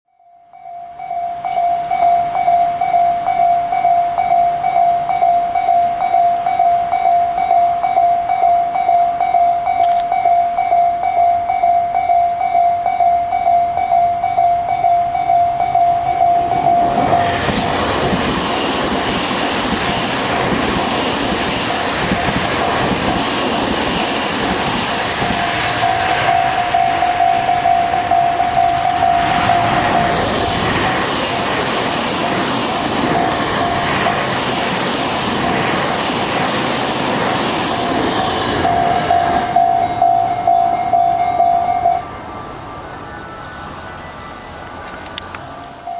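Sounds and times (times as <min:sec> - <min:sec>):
level crossing bell dinging: 0:00.2 - 0:17.4, 0:25.3 - 0:30.7, 0:38.6 - 0:42.4
electric train passing: 0:00.2 - 0:45.9.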